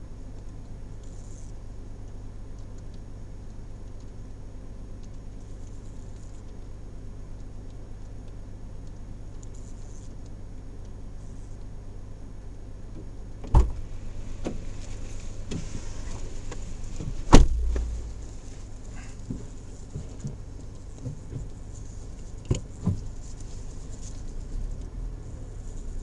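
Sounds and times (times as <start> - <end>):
car engine running low: 13.0 - 26.0
body and suspension knocks: 13.4 - 13.8, 17.0 - 18.2.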